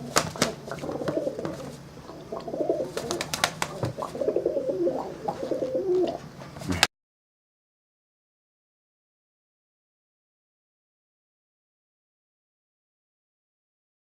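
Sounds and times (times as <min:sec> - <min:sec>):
pigeon cooing: 0:00.0 - 0:06.9.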